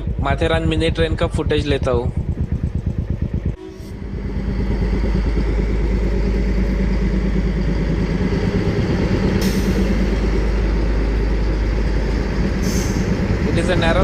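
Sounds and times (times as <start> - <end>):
diesel locomotive engine throbbing: 0.0 - 14.0.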